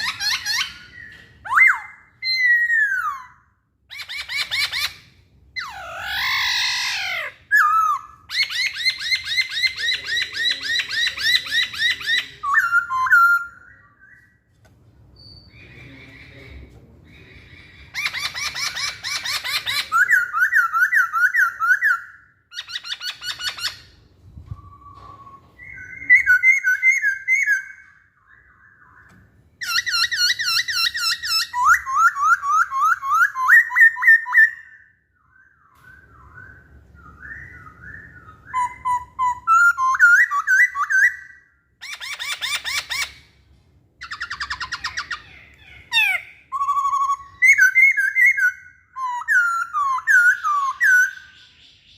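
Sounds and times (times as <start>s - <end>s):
bird whistling song: 0.0s - 14.5s, 15.1s - 43.3s, 44.0s - 51.9s
bird harsh chattering: 15.4s - 24.0s, 29.6s - 34.6s.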